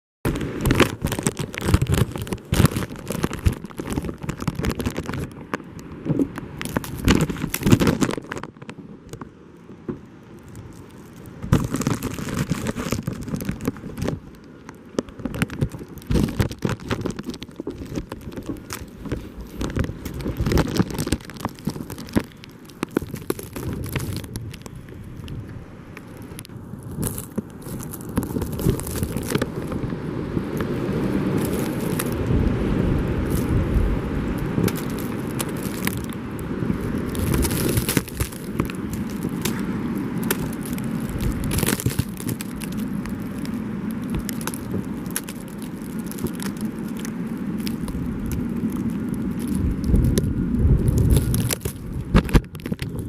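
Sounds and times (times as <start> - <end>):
irregular crackling: 0.2 - 53.0
wind gusting against microphone: 0.3 - 53.0.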